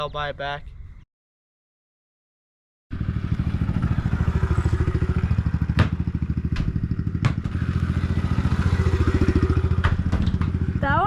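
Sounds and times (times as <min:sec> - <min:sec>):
dirt bike engine running: 0:02.9 - 0:11.0.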